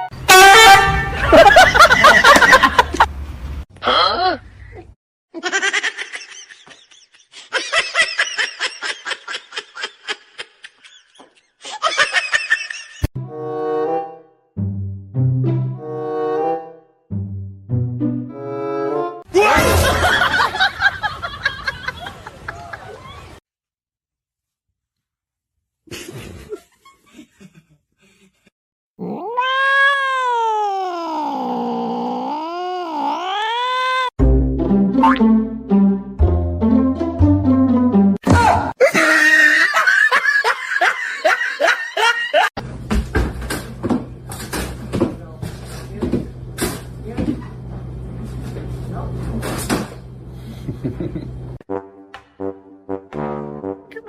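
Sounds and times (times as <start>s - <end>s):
person laughing hard: 1.1s - 3.1s, 5.4s - 13.1s, 25.9s - 28.5s, 38.8s - 42.6s, 50.5s - 51.4s
cat yowling: 29.0s - 34.1s.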